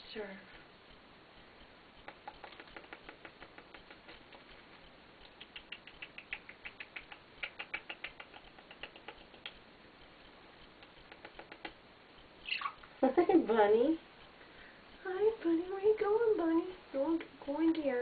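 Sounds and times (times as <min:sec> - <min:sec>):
parrot clicks and chirps: 0:02.0 - 0:12.9.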